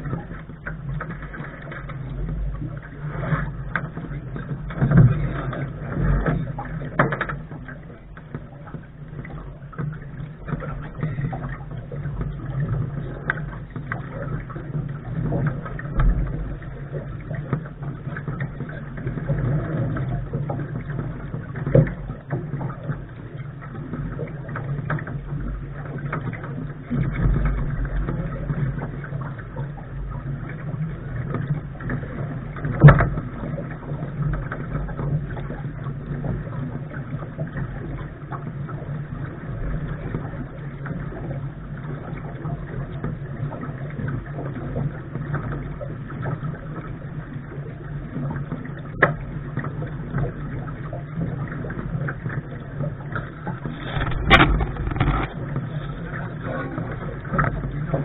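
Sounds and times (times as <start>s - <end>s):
steady low hum: 0.0s - 58.0s
water rushing past hull: 0.0s - 58.0s
sharp knocks from boat gear: 53.7s - 55.5s
wind buffeting microphone: 53.7s - 57.2s.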